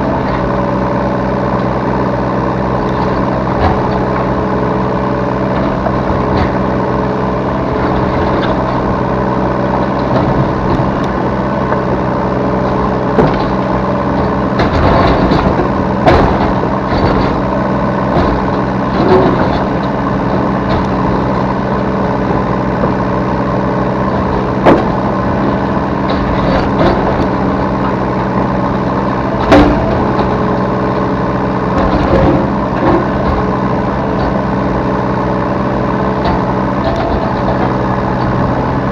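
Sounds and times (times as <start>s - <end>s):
excavator diesel engine running: 0.0s - 38.9s
sharp knocks and clanks: 12.7s - 21.5s, 24.1s - 34.5s.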